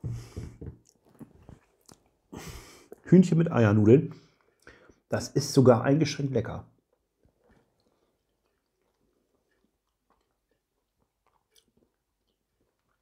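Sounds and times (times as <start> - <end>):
faint chewing mouth clicks: 0.8 - 2.2, 6.9 - 13.0.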